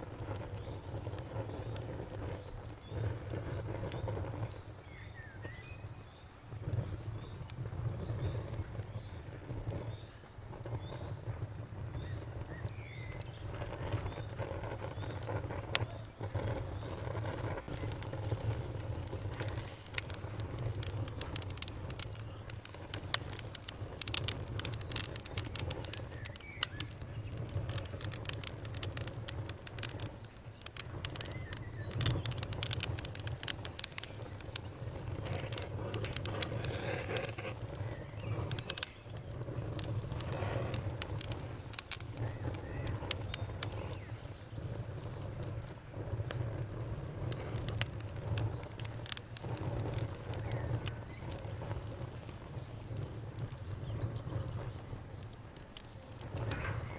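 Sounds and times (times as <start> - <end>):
campfire crackling and popping: 0.0 - 56.9
faint bird chirps: 4.8 - 11.1, 11.9 - 17.2, 25.3 - 27.4, 31.1 - 32.5, 41.8 - 45.2.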